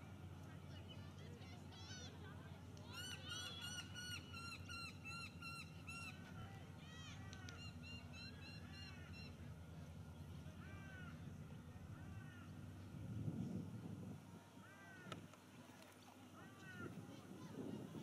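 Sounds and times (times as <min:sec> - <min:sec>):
bird calling harshly: 0:02.9 - 0:06.2
steady low rumble: 0:09.0 - 0:18.0.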